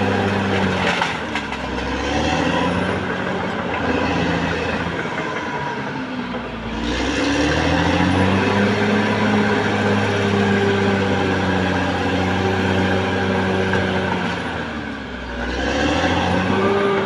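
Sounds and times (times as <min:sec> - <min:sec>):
bulldozer diesel engine revving: 0:00.0 - 0:17.0.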